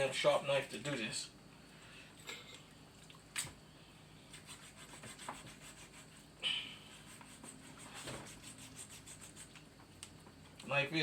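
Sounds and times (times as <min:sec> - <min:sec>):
knife sawing through raw chicken: 0:04.4 - 0:06.3, 0:06.9 - 0:09.5.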